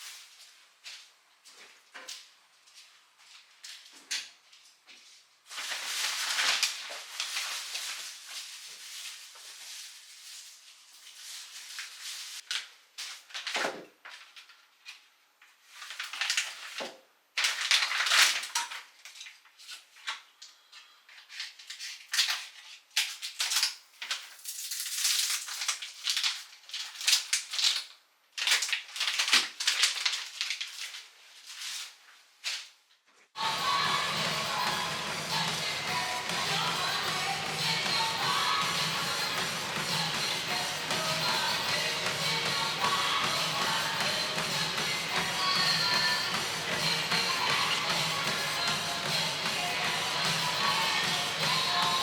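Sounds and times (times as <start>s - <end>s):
plastic bags rustling: 5.4s - 13.5s.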